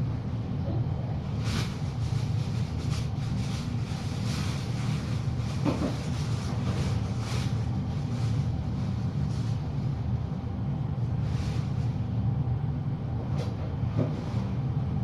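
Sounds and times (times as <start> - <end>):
low background hum: 0.0 - 15.0
soft scratchy rustles: 1.3 - 9.9.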